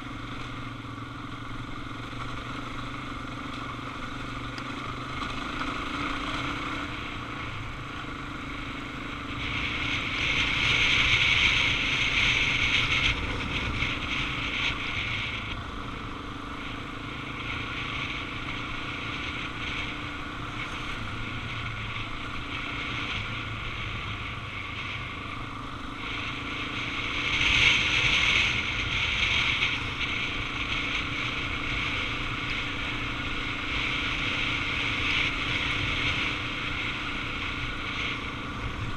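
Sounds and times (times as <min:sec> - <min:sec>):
motorcycle engine running: 0:00.0 - 0:38.9
wind rushing over microphone: 0:04.9 - 0:38.9.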